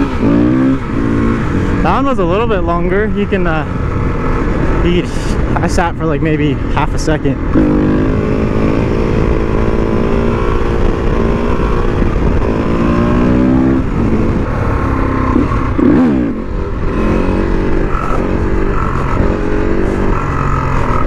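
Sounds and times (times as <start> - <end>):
motorcycle engine revving: 0.0 - 6.0, 6.6 - 21.0.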